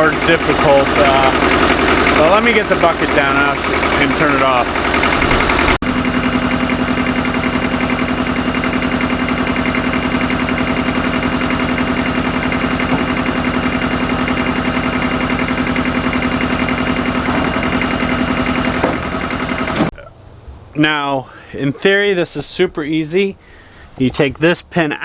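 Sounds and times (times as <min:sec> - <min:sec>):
tractor diesel engine idling: 0:00.0 - 0:19.9.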